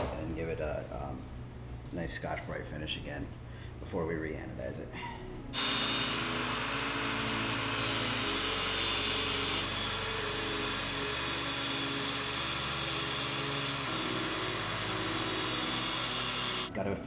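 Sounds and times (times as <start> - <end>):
power tool running: 5.6 - 16.7.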